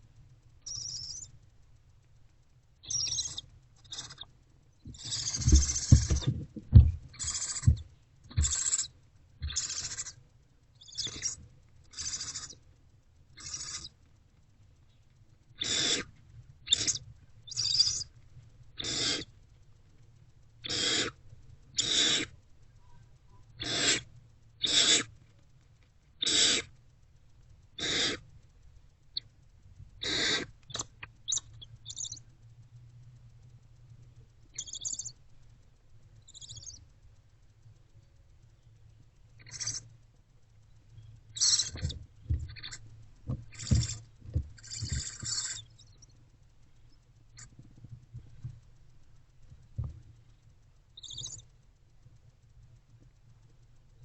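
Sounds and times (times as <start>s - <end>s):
scratchy clicks in nest box: 4.9s - 10.2s, 41.4s - 46.2s
owlets rasping begging calls: 5.0s - 6.3s, 7.2s - 7.8s, 8.4s - 10.1s, 41.4s - 42.8s, 44.6s - 45.7s.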